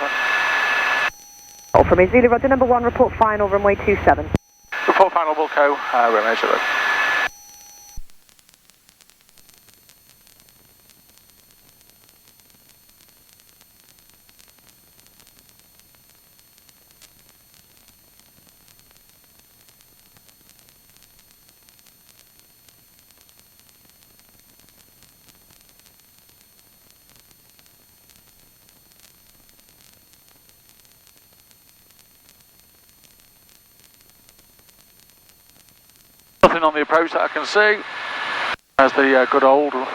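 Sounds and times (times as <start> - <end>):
headset intercom hiss: 0.0 - 8.0, 36.4 - 39.9.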